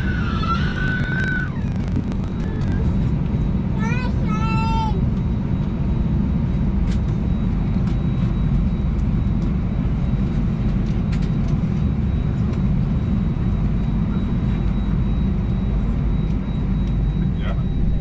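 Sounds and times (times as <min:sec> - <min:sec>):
faint clicks: 0:00.7 - 0:02.8.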